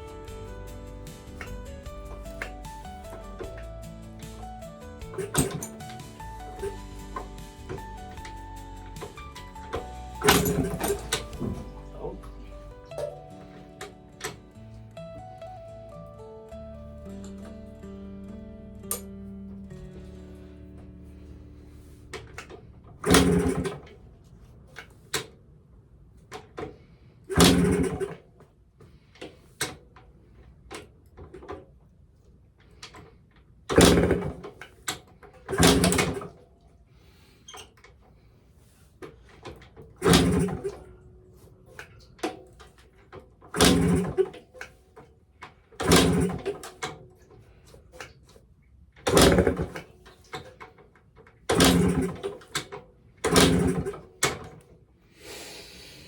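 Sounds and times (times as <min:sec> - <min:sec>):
engine kick-start turning over: 0:00.0 - 0:14.4, 0:21.6 - 0:24.0, 0:27.3 - 0:28.3, 0:33.7 - 0:36.4, 0:39.3 - 0:41.0, 0:43.5 - 0:44.6, 0:45.8 - 0:47.1, 0:49.1 - 0:50.7, 0:51.5 - 0:54.6.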